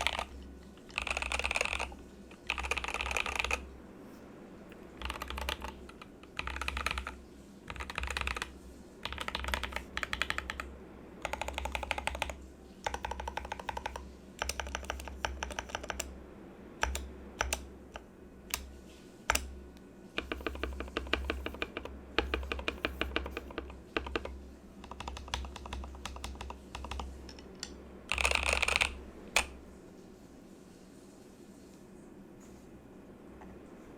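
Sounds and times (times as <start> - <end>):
mechanical keyboard keys clacking: 0.0 - 3.7, 5.0 - 16.1, 16.8 - 18.7, 20.2 - 29.6.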